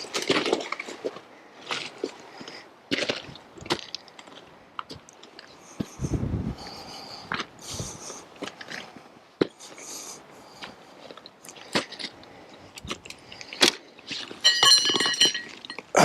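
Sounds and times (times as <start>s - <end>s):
crunching steps on gravel: 0.0s - 5.1s
metallic jangling: 14.4s - 15.8s.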